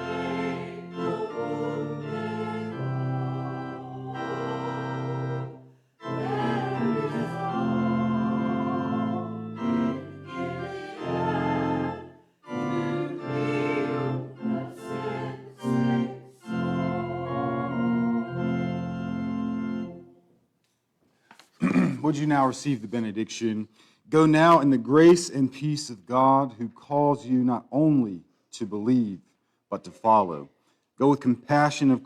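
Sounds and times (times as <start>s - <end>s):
organ playing held chords: 0.0s - 20.2s.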